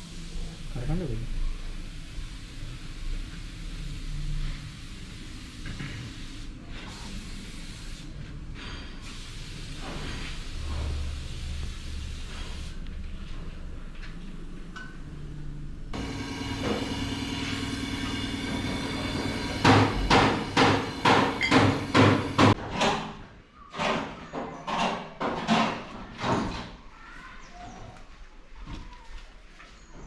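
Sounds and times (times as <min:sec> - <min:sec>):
hammer blows on metal: 0:16.0 - 0:22.6
steady hum: 0:16.0 - 0:22.6.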